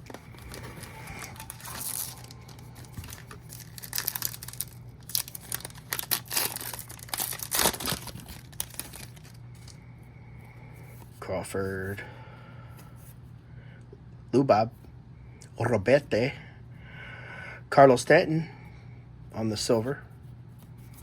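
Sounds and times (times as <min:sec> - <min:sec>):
card pack wrapper crinkling: 0:00.0 - 0:09.8
low steady hum: 0:00.0 - 0:21.0.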